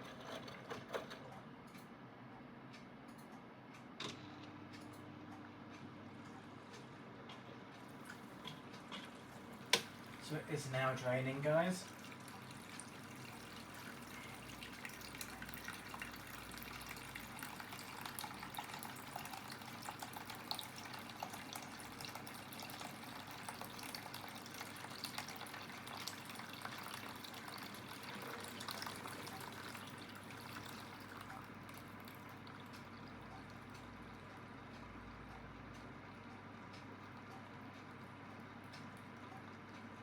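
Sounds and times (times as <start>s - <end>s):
water trickling from drain: 9.2s - 34.2s.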